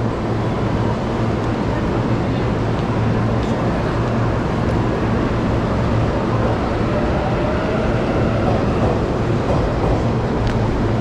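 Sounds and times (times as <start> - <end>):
electric train humming: 0.0 - 11.0
train whine rising in pitch: 5.1 - 9.4.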